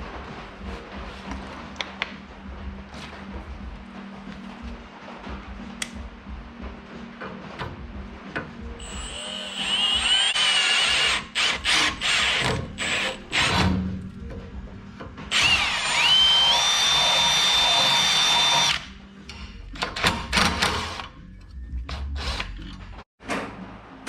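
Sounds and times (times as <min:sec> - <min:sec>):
power drill whining: 0:08.8 - 0:13.6, 0:15.3 - 0:18.9.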